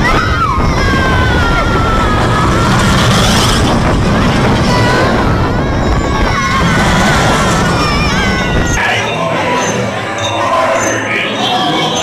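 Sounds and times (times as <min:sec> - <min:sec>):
wind on microphone: 0:00.0 - 0:08.8
crowd chatter: 0:00.0 - 0:12.0.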